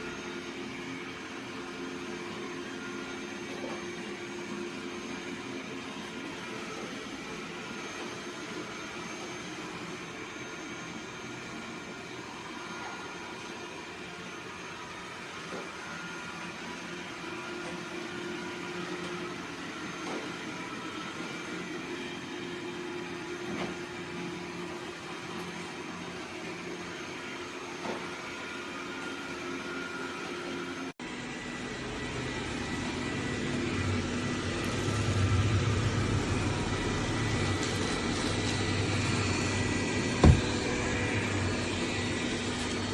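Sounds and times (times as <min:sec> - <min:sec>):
robot vacuum motor whine: 0:31.1 - 0:42.9.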